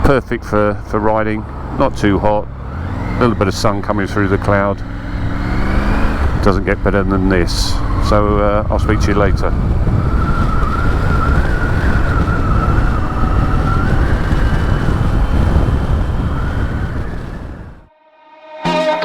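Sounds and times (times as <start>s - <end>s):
wind and road noise: 0.0s - 17.9s
high whistle: 18.2s - 19.0s.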